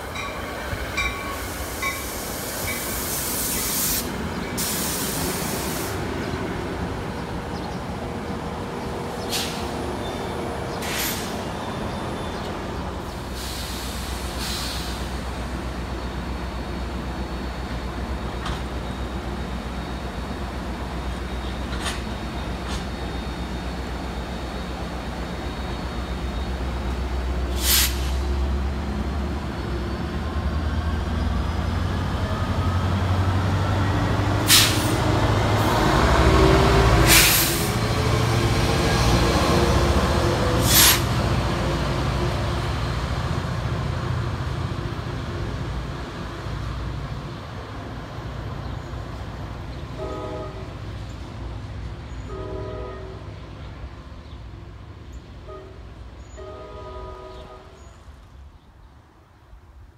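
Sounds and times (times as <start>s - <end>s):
diesel train rumbling past: 0.0s - 59.9s
train horn blasts: 50.0s - 50.8s, 52.2s - 53.3s, 55.4s - 58.0s.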